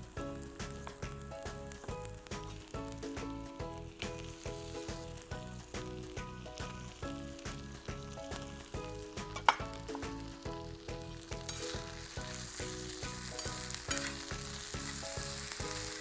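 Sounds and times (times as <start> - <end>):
soft background music with beat: 0.0 - 16.0
vegetables sizzling in oil: 0.0 - 16.0
metal spatula stirring: 11.4 - 14.7.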